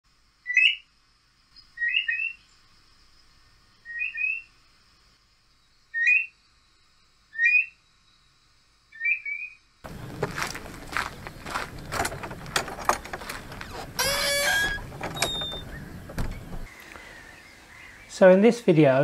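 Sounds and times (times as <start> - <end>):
bird whistled call: 1.8 - 2.4, 5.9 - 6.3, 7.4 - 7.8, 9.0 - 9.6.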